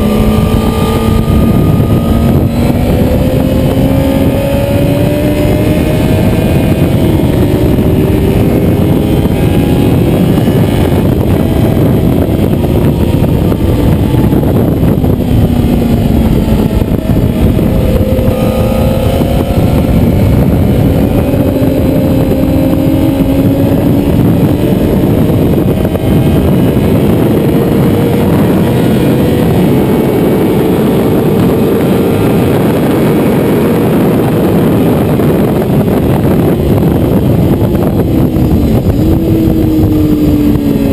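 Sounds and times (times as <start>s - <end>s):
motorcycle engine accelerating: 0.0s - 40.9s
steady rush of noise: 0.0s - 40.9s.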